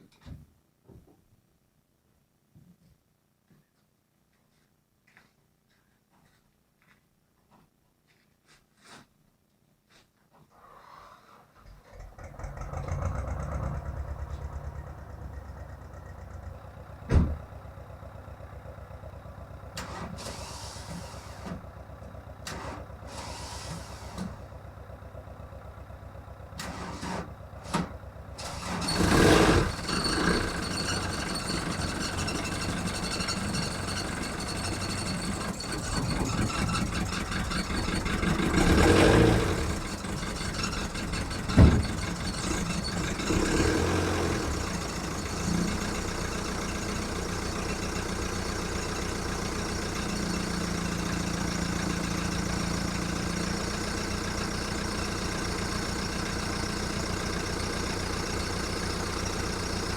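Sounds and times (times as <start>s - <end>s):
diesel engine running roughly: 12.0s - 59.9s.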